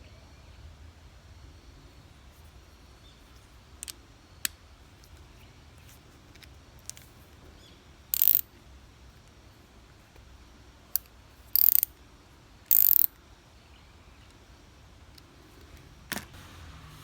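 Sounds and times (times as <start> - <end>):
hand tools clicking: 8.2 - 8.4, 11.0 - 11.9, 12.7 - 13.1
ratchet wrench clicking: 8.2 - 8.5, 11.0 - 11.9, 12.7 - 13.2.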